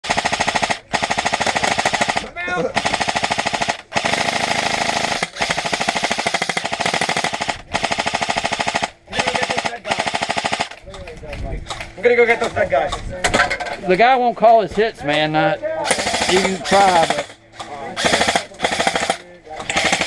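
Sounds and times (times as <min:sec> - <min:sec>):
airsoft rifle firing bursts: 0:00.0 - 0:10.8, 0:15.9 - 0:17.4, 0:18.0 - 0:20.0.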